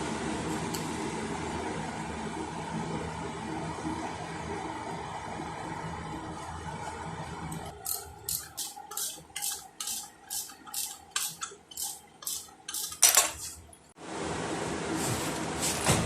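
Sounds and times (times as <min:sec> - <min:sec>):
ratchet wrench clicking: 0:07.8 - 0:13.1.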